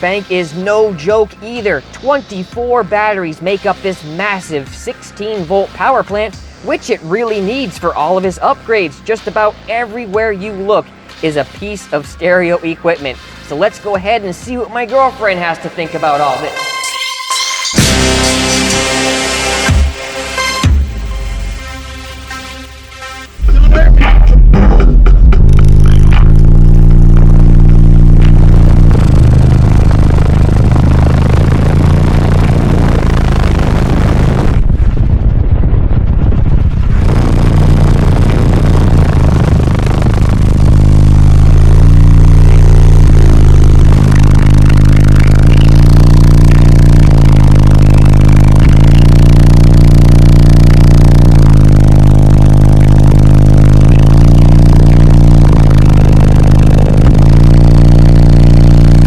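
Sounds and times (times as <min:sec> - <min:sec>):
loud bass music from subwoofers: 0:00.0 - 0:59.0
rattling from bass: 0:23.4 - 0:59.0.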